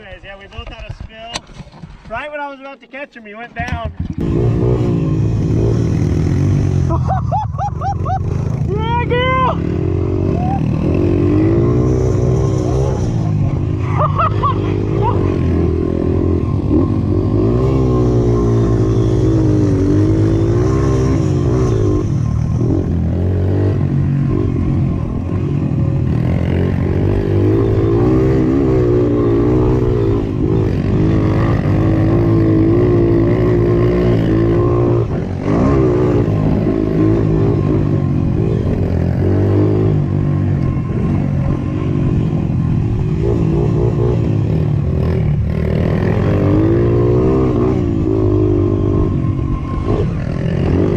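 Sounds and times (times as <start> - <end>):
dirt bike engines revving: 0.0 - 50.9.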